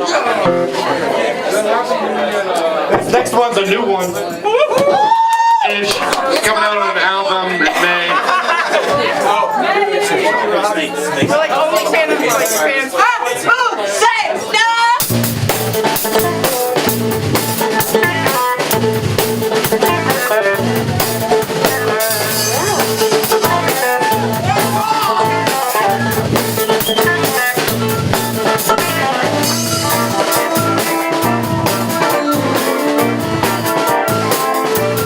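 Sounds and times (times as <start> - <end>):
rock band playing: 0.2 - 1.4, 15.0 - 35.0.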